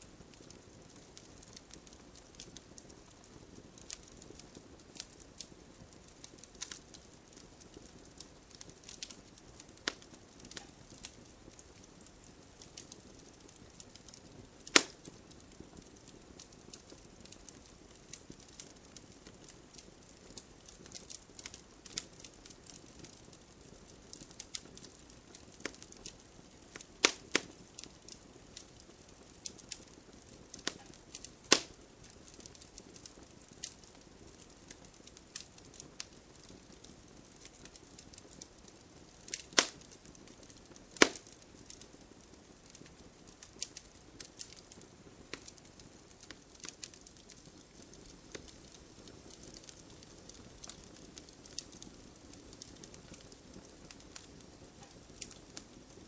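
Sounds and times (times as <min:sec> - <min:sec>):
faint rain hiss: 0:00.0 - 0:56.0
wood fire crackling: 0:00.0 - 0:56.0.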